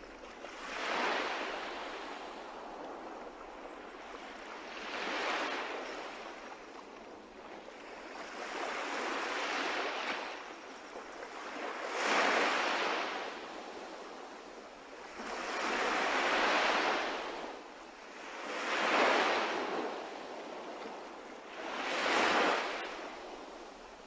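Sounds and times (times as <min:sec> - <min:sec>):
sea waves washing in: 0:00.0 - 0:06.4, 0:15.1 - 0:24.0.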